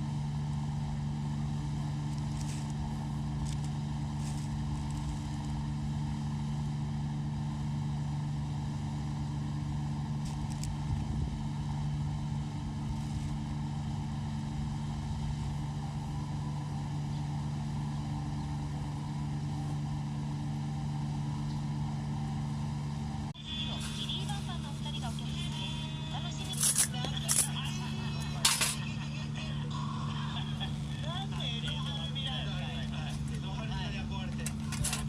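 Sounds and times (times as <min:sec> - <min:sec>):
low engine hum: 0:00.0 - 0:35.0.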